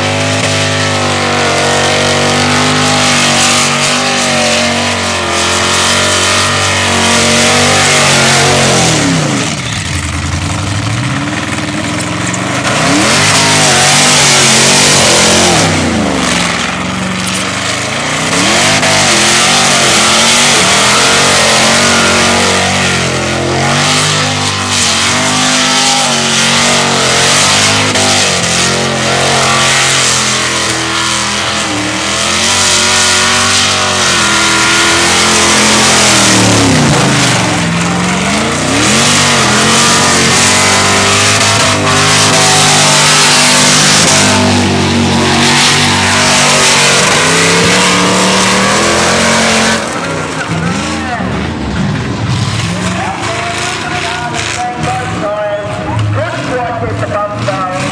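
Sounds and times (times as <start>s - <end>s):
car engine revving hard: 0.0s - 57.9s.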